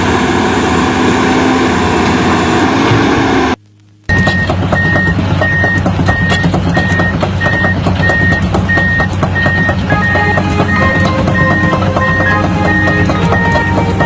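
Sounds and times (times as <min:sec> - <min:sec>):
excavator engine running: 0:00.0 - 0:14.0
travel alarm beeping: 0:04.1 - 0:14.0.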